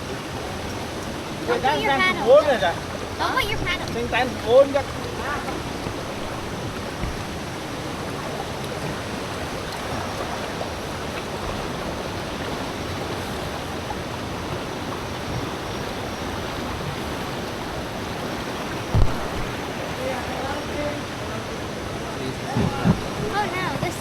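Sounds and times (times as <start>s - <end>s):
river rapids rushing: 0.0s - 24.0s
dull thump: 5.8s - 7.5s, 18.9s - 19.6s, 22.6s - 24.0s.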